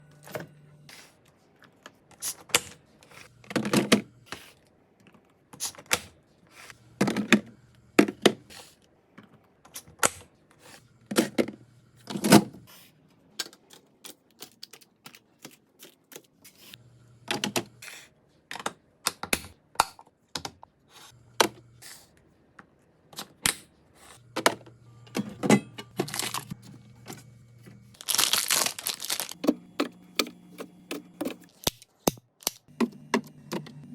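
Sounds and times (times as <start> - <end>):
plastic packaging rustling: 26.0 - 26.6, 28.0 - 29.4.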